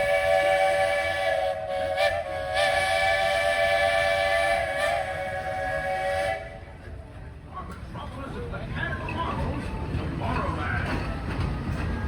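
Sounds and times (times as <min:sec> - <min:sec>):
steam locomotive chime whistle: 0:00.0 - 0:06.7.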